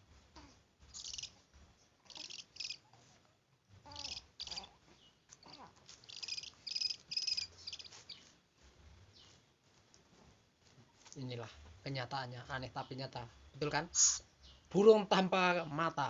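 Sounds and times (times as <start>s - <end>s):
owl giving raspy hissing calls: 0.9s - 1.4s, 2.1s - 2.9s, 3.9s - 4.8s, 5.5s - 8.2s.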